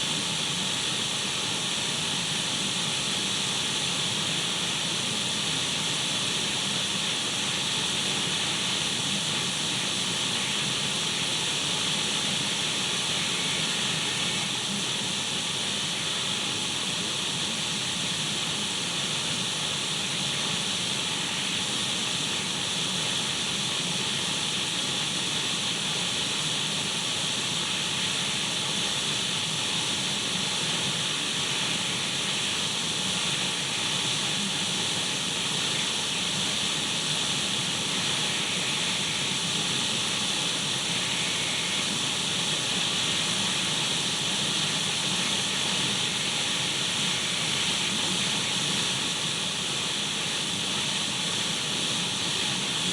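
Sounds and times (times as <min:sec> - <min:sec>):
radio static hiss: 0:37.8 - 0:40.0, 0:40.7 - 0:52.9.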